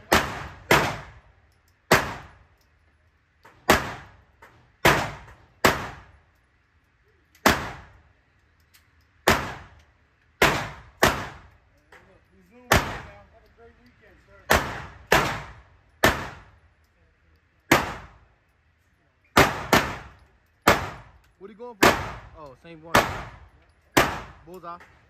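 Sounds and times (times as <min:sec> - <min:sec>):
pistol shots with echo: 0:00.0 - 0:02.5, 0:03.6 - 0:04.2, 0:04.8 - 0:06.2, 0:07.4 - 0:08.0, 0:09.2 - 0:09.8, 0:10.4 - 0:11.6, 0:12.7 - 0:13.3, 0:14.4 - 0:16.6, 0:17.7 - 0:18.2, 0:19.4 - 0:21.2, 0:21.8 - 0:24.5.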